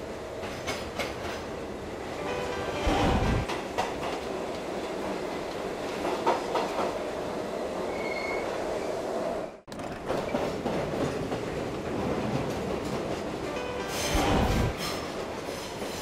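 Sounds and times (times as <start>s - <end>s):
train rumbling along rails: 0.0s - 16.0s
faint high wheel squeal: 7.9s - 8.5s.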